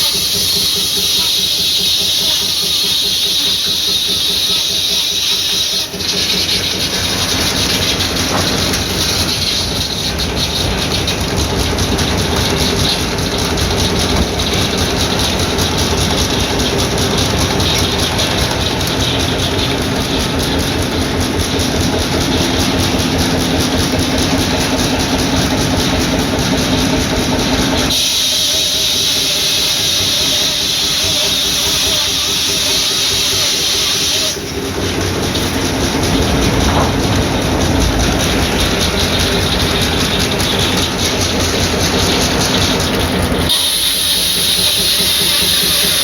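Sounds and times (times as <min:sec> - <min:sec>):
sawmill engine mechanical din: 0:00.0 - 0:46.0.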